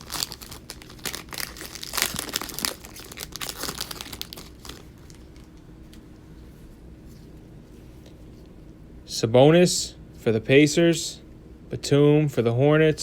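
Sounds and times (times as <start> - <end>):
plastic wrapper tearing and crinkling: 0.0 - 5.5.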